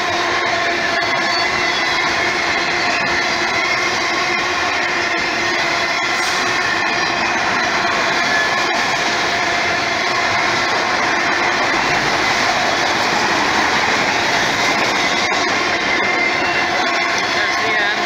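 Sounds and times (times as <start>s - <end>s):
steel wheels rumbling on rail: 0.0s - 18.0s.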